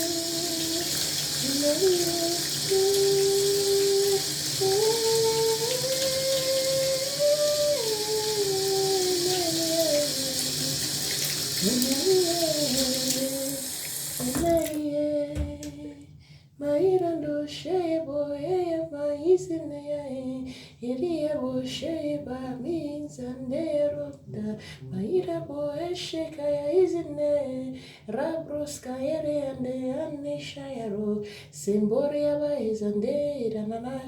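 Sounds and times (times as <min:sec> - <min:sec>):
woman singing: 0:00.0 - 0:10.9, 0:11.6 - 0:34.0
running water: 0:00.0 - 0:15.7.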